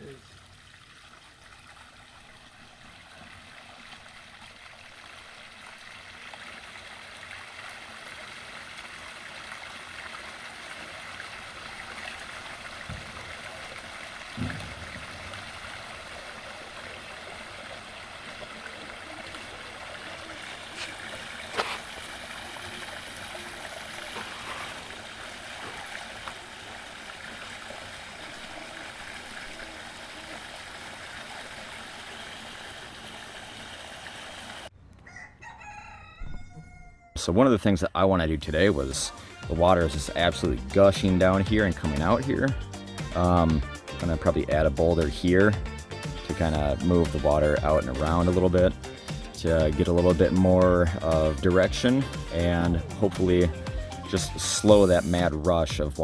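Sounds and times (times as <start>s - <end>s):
water running over rocks: 0.0s - 34.7s, 38.5s - 45.6s, 46.3s - 56.0s
low thump: 12.8s - 13.3s, 14.4s - 15.8s.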